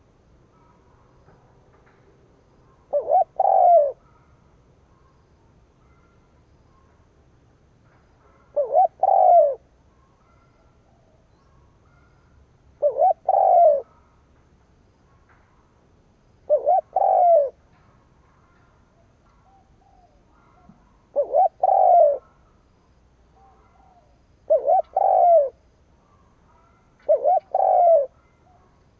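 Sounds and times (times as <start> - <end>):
dove cooing: 2.8 - 4.3, 8.2 - 10.4, 12.8 - 14.1, 16.5 - 17.7, 19.4 - 22.6, 23.4 - 28.8.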